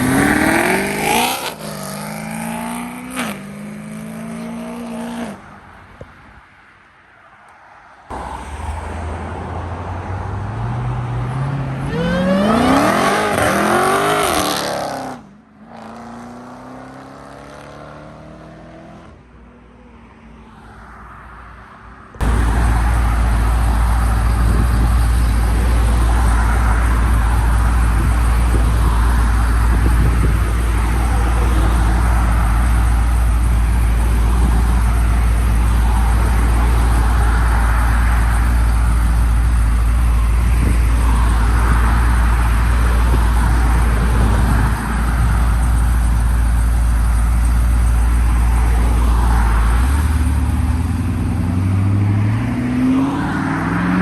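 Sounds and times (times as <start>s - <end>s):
car engine revving: 0.0s - 5.4s, 8.1s - 19.1s, 22.2s - 54.0s
loud low rumbling noise: 22.2s - 51.6s.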